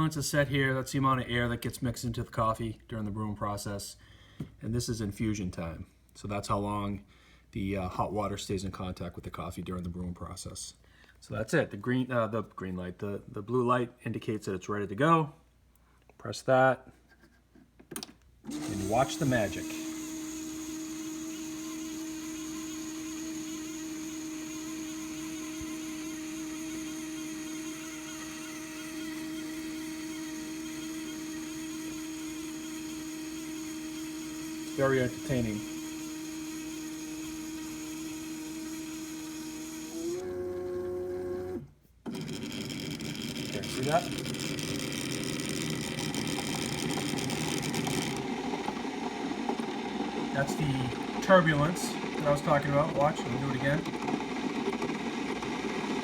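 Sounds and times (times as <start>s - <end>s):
coffee brewer electric hum: 18.0s - 56.0s.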